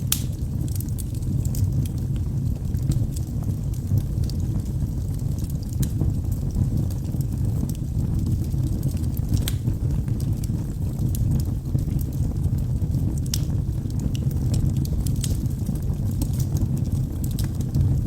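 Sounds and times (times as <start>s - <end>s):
logs crackling: 0.0s - 3.3s, 8.6s - 10.3s, 13.0s - 18.0s
fire flames rumbling: 0.0s - 18.0s.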